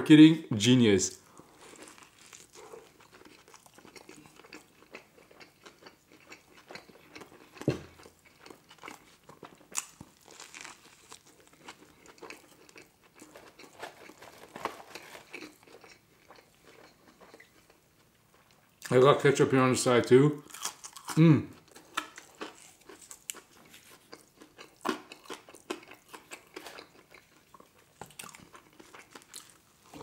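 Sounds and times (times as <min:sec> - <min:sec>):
chewing with mouth clicks: 0:01.3 - 0:18.9, 0:20.4 - 0:30.0
biting into burger: 0:01.5 - 0:17.5.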